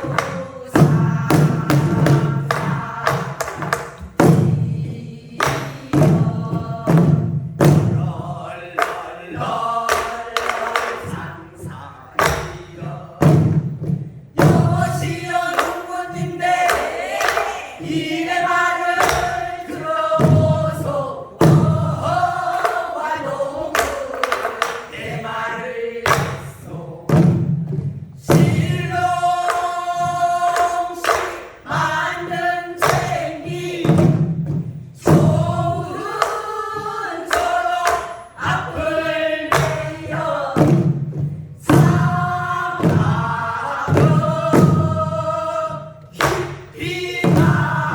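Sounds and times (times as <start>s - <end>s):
barrel drum strokes: 0.0s - 47.9s
group singing in chorus: 0.0s - 47.9s.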